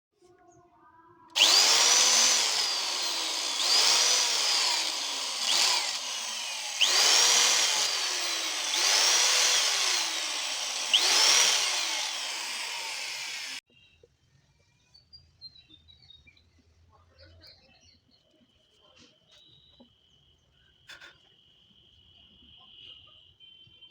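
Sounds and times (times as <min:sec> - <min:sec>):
power drill driving into wood: 0:01.4 - 0:13.6.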